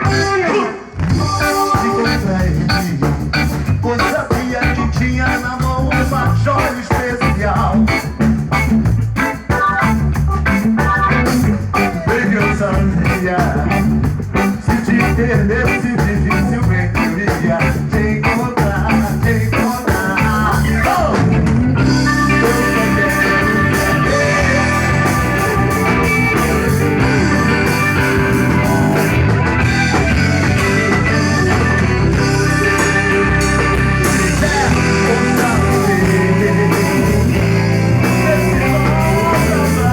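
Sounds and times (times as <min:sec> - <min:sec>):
reggae band playing: 0:00.0 - 0:39.9
long held high notes: 0:21.8 - 0:39.4.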